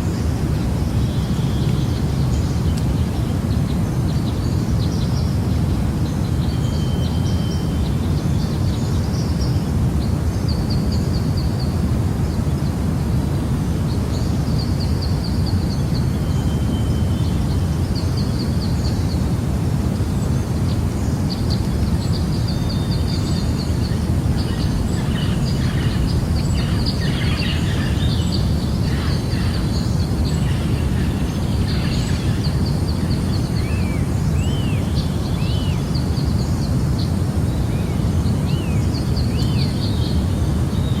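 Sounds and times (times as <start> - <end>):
birds calling: 21.4 - 35.8
steady low rush: 21.6 - 35.3
upswept bird calls: 22.3 - 35.8.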